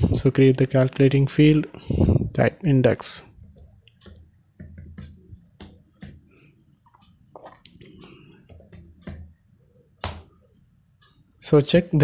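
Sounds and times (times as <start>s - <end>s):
typing on keyboard: 3.5s - 6.2s, 7.7s - 9.3s.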